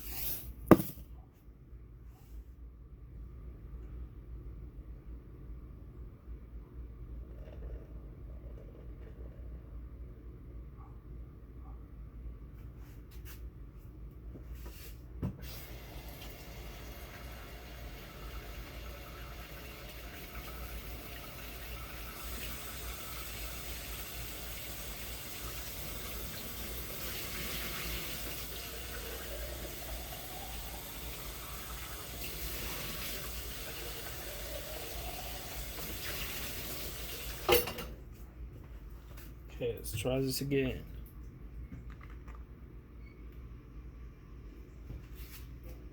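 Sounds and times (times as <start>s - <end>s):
knock: 0.7s - 1.0s.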